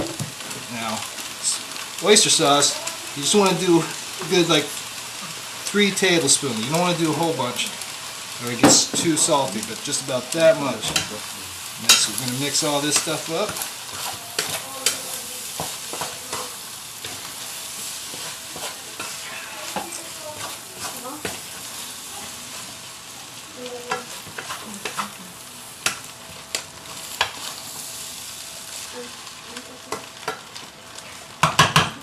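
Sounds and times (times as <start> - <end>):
rice sizzling in a pan: 0.0 - 32.0
utensil clicking on pan: 11.8 - 17.3.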